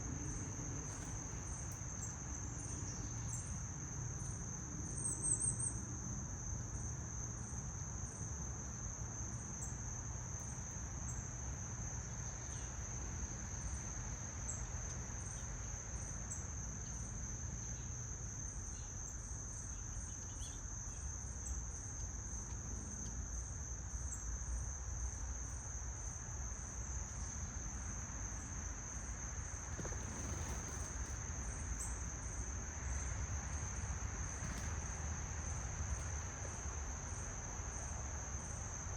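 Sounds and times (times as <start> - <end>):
high insect chirps: 0.1 - 5.8, 7.5 - 38.9
insects trilling: 8.8 - 38.9.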